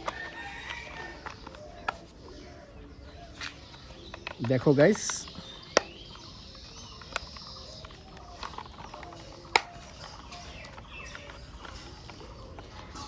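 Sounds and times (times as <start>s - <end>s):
plastic toy parts clicking: 3.4s - 13.0s.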